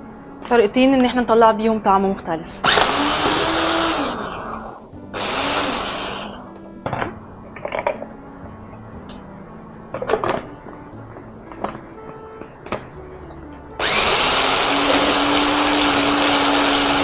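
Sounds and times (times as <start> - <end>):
soft background music: 0.0 - 17.0
electric blender whirring: 2.6 - 7.0, 11.6 - 17.0.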